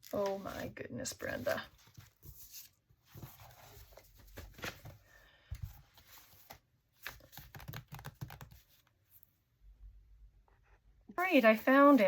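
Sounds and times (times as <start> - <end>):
paper rustling and sliding: 1.3 - 7.5.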